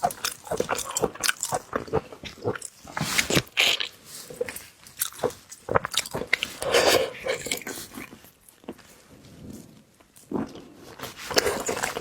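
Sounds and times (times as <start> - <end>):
crisp bites and wet chewing: 0.0 - 6.6
crackling crunches: 10.2 - 12.0.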